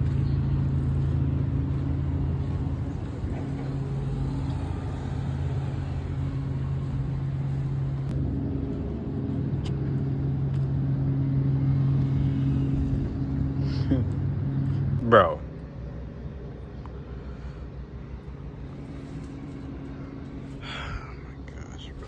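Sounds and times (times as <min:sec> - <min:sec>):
diesel truck engine idling: 0:00.0 - 0:15.1.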